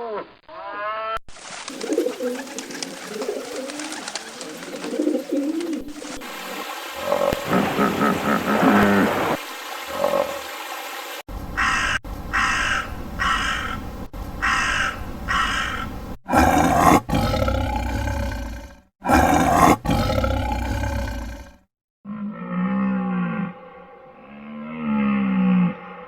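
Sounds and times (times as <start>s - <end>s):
long deep animal calls: 7.0s - 10.5s, 11.6s - 26.0s
animal calls: 11.6s - 21.5s.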